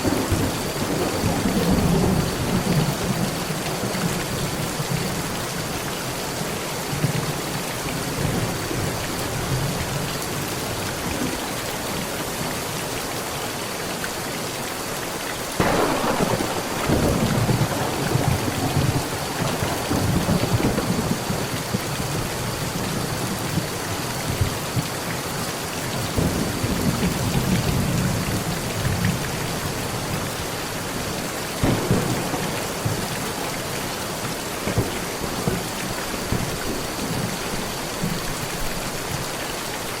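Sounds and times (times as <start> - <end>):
thunderclaps and rumbling: 0.0 - 5.4, 15.6 - 25.2, 25.8 - 30.3, 31.6 - 39.2
heavy rain on a metal roof: 0.0 - 40.0.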